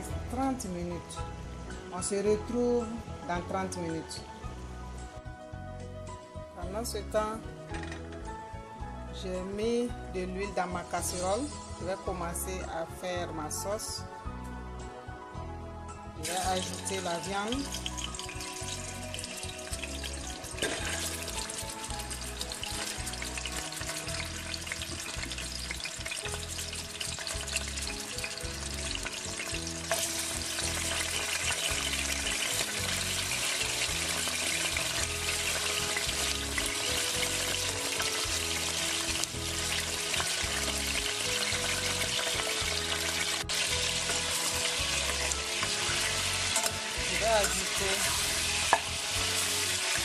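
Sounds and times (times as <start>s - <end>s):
background music: 0.0s - 50.0s
meat sizzling in hot oil: 16.2s - 50.0s.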